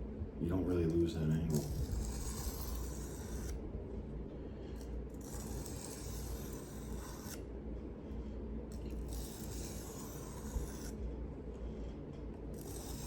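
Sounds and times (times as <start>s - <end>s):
knife scraping on sharpening stone: 1.5s - 3.6s, 5.2s - 7.4s, 8.8s - 11.0s, 12.6s - 13.0s.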